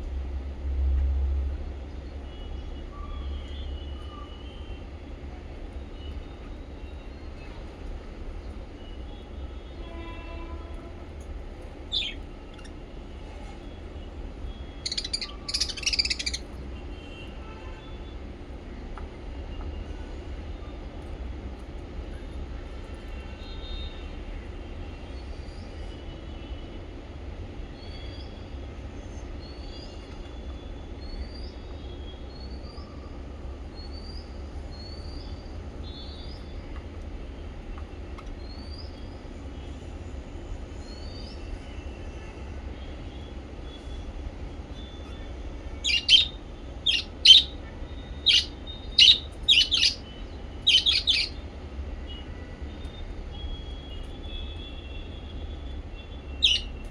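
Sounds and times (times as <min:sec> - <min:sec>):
parrots chirping: 0:11.8 - 0:12.8, 0:14.5 - 0:16.6, 0:45.8 - 0:51.4, 0:56.3 - 0:56.9
loud sharp parrot calls: 0:11.9 - 0:12.8, 0:14.8 - 0:16.6, 0:45.8 - 0:47.6, 0:48.2 - 0:51.4, 0:56.4 - 0:56.8.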